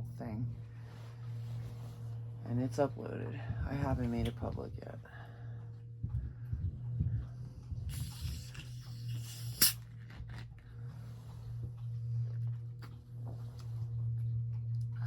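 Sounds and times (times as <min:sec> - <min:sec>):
hiss: 0:07.9 - 0:09.8.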